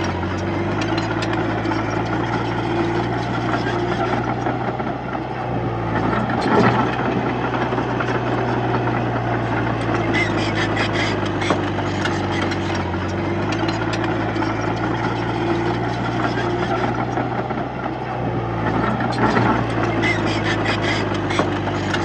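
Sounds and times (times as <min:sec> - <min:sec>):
rattling metallic clanks: 0:00.0 - 0:02.7, 0:09.9 - 0:16.9
bulldozer diesel engine running: 0:00.0 - 0:22.0.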